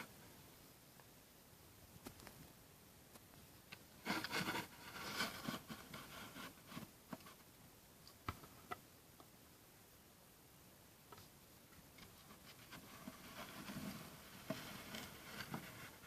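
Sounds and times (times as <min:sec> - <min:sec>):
rubbing and scraping plastic: 0:04.0 - 0:07.5, 0:12.0 - 0:16.0.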